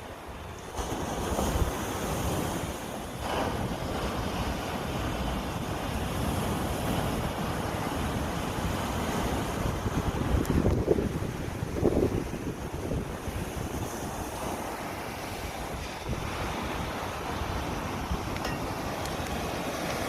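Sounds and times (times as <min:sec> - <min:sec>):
sea waves washing ashore: 0:00.0 - 0:20.0
wind buffeting microphone: 0:00.2 - 0:20.0.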